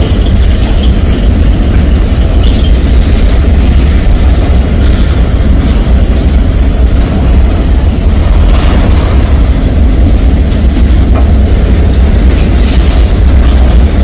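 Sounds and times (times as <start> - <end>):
freight train wheels rumbling on rail: 0.0 - 14.0.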